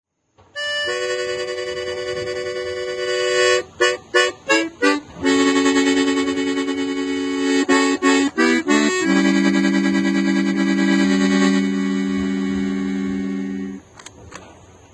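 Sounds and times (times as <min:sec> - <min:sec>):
accordion playing chords: 0:00.4 - 0:14.0.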